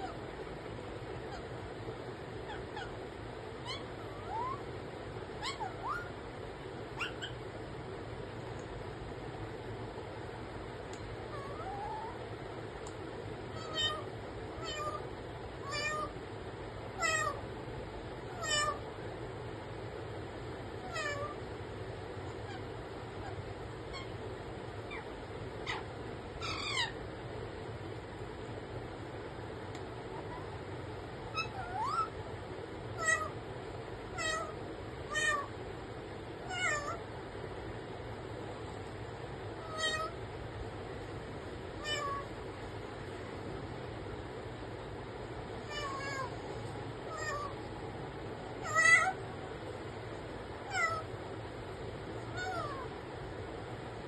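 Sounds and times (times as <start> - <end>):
parrot mimicking cat meow: 2.4 - 3.0, 3.6 - 4.7, 5.4 - 6.1, 11.3 - 12.2, 13.6 - 15.0, 15.6 - 16.2, 17.0 - 17.4, 18.3 - 18.8, 20.8 - 21.4, 24.9 - 27.0, 31.3 - 32.2, 33.0 - 33.4, 34.1 - 35.5, 36.4 - 37.0, 39.6 - 40.2, 41.8 - 42.3, 45.6 - 46.4, 47.1 - 47.6, 48.6 - 49.2, 50.6 - 51.1, 52.3 - 52.9.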